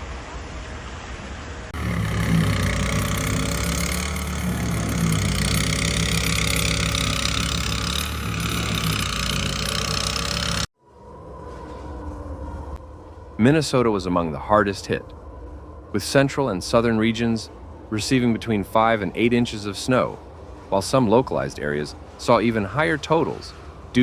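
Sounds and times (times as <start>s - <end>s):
vehicle engine idling: 1.8s - 10.7s.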